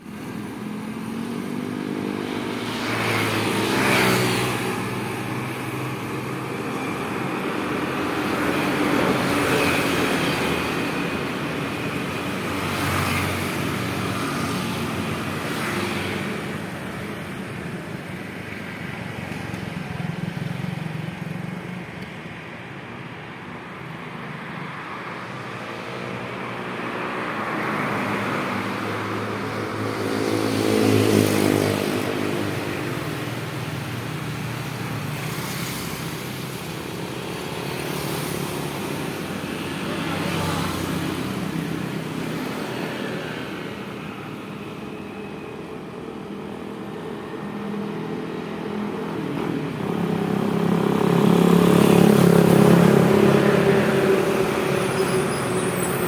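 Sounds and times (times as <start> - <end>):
motor vehicles passing by: 0.1 - 22.3, 25.2 - 56.0
motorcycles passing by: 0.1 - 22.4, 24.8 - 56.0.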